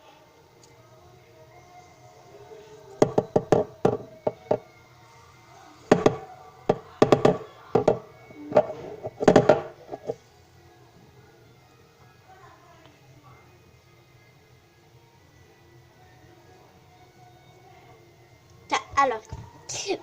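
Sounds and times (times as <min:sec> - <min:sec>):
sharp taps and knocks: 0:05.9 - 0:08.0.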